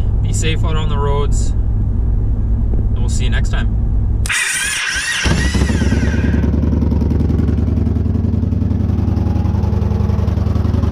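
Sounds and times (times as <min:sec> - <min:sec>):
motorcycle engine running: 0:04.3 - 0:10.9.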